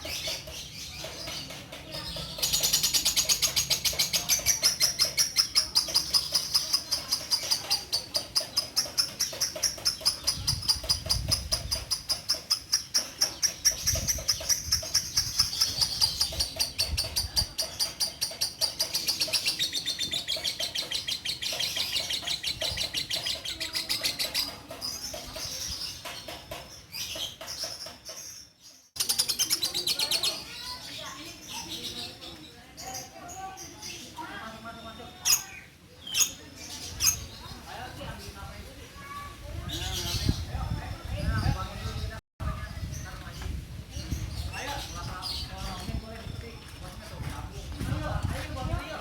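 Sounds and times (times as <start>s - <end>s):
lovebird chattering: 0.0s - 32.2s.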